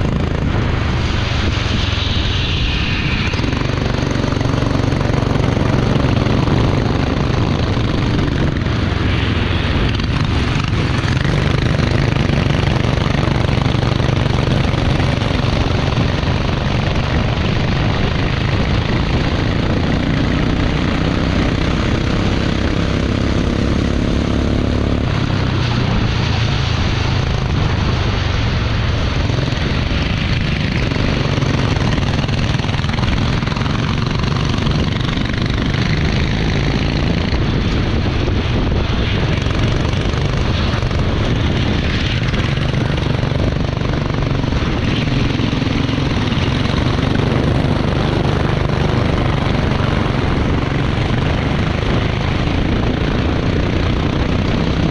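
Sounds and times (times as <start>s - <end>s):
racing engine running: 0.0s - 16.5s, 30.4s - 54.9s.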